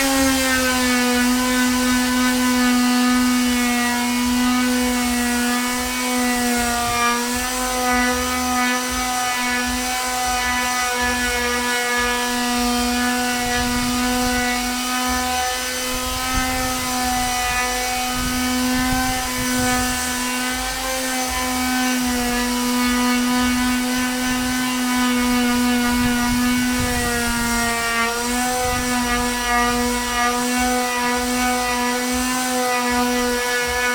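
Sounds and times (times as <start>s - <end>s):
electric sander on wood: 0.0s - 33.9s.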